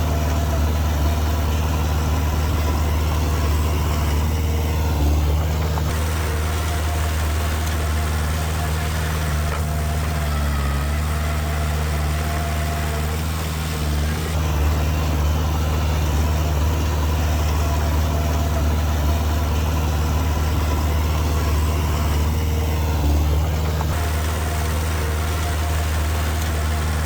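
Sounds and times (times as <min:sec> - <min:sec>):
diesel engine running at low revs: 0:00.0 - 0:27.0.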